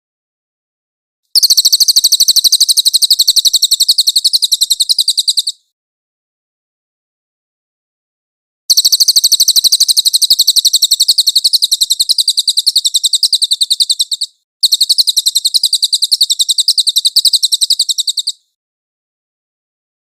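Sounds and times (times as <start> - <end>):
songbird rapid rolling trill: 1.4 - 5.6, 8.7 - 18.4.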